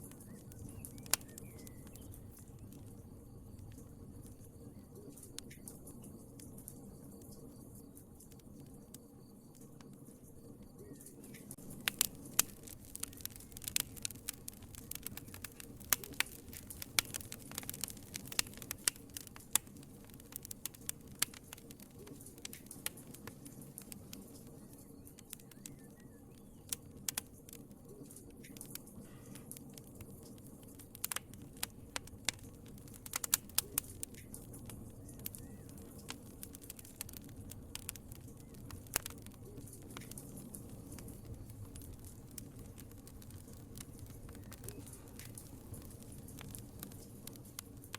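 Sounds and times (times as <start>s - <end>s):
low rumble of flames: 0.0s - 47.9s
wood fire crackling: 0.0s - 47.9s.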